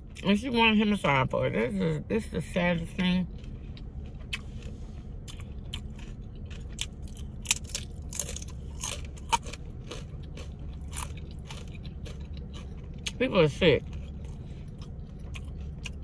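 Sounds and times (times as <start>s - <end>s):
low hum: 0.0s - 16.0s
crunching chip: 3.3s - 13.2s.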